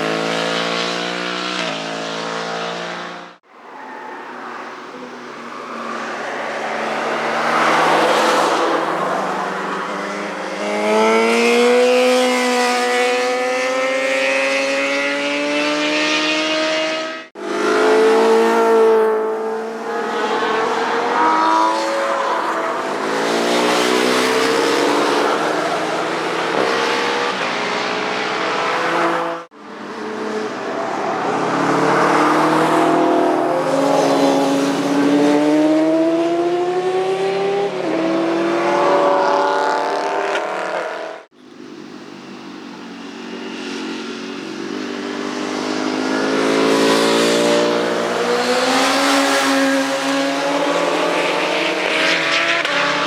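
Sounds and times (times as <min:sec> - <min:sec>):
motorcycles racing past: 0:05.4 - 0:41.3, 0:42.2 - 0:53.0
motorcycle approaching: 0:28.8 - 0:53.0.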